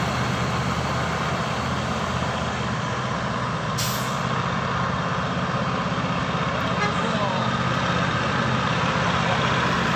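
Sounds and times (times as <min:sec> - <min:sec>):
diesel truck engine running: 0:00.0 - 0:09.9
short air hiss: 0:03.8 - 0:04.2.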